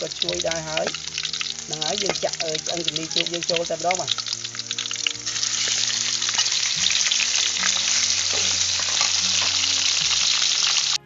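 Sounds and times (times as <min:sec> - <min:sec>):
meat sizzling in hot oil: 0:00.0 - 0:11.0
metal spatula scraping a wok: 0:05.3 - 0:10.8.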